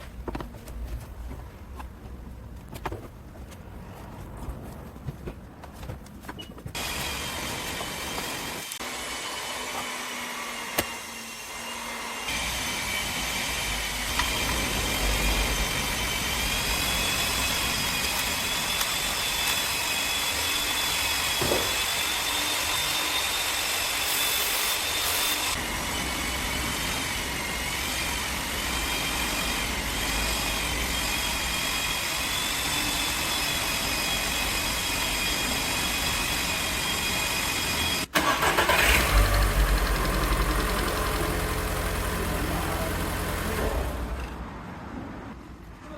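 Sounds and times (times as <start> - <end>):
car engine idling: 38.2 - 44.2.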